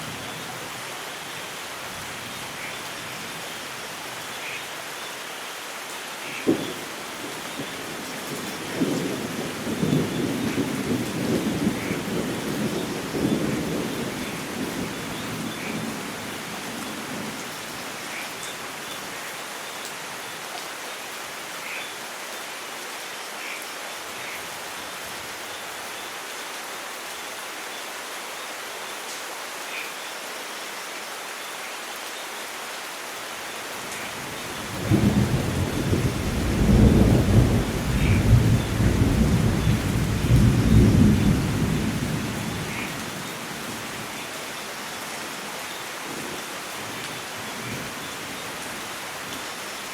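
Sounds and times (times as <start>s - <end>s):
steady rain falling: 0.0s - 49.9s
rolling rumble of thunder: 34.7s - 43.0s.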